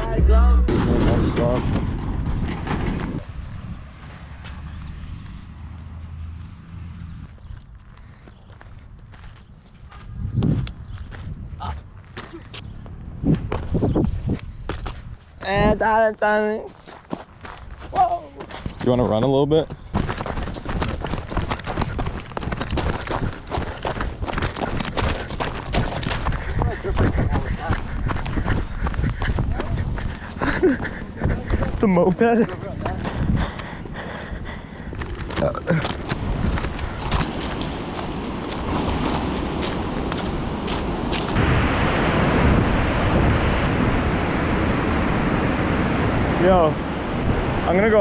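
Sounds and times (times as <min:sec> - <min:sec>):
wind buffeting microphone: 0:00.0 - 0:05.9, 0:07.0 - 0:16.0, 0:17.4 - 0:48.0
low rumble: 0:00.0 - 0:07.2
running footsteps: 0:16.7 - 0:41.4
rushing water: 0:35.7 - 0:48.0.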